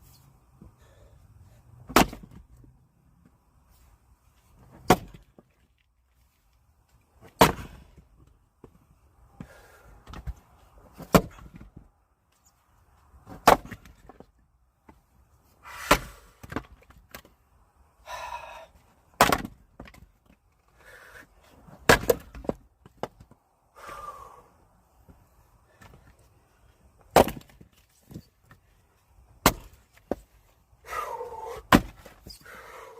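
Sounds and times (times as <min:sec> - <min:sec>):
axe chopping firewood: 0:01.8 - 0:02.5, 0:04.7 - 0:05.5, 0:07.2 - 0:08.2, 0:09.4 - 0:11.8, 0:13.2 - 0:14.3, 0:15.7 - 0:17.3, 0:19.1 - 0:20.1, 0:21.7 - 0:23.4, 0:27.0 - 0:28.2, 0:29.4 - 0:30.4, 0:31.3 - 0:32.3.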